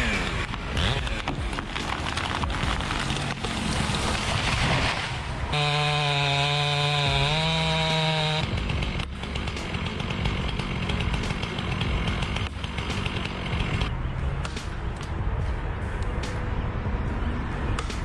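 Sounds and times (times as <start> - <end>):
chainsaw running at high revs: 0.0 - 3.3, 5.5 - 13.9.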